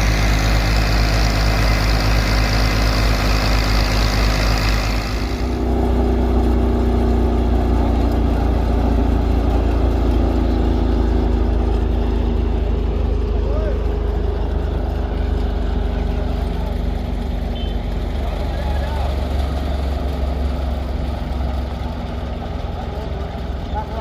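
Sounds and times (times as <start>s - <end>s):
thresher humming and rattling: 0.0s - 24.0s
tractor engine running: 0.0s - 24.0s.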